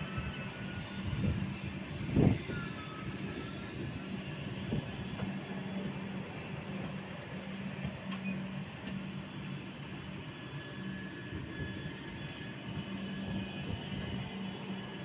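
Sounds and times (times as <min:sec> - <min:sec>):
train wheels rumbling on rail: 0:00.0 - 0:15.0
faint wheel squeal: 0:06.5 - 0:15.0.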